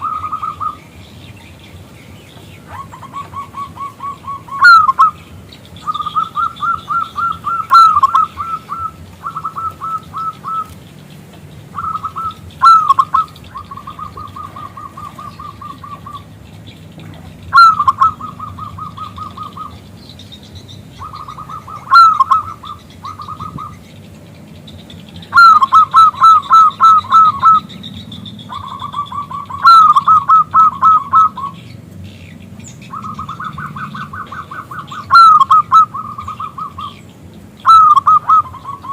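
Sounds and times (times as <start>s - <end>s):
dove cooing trill: 0.0s - 38.9s.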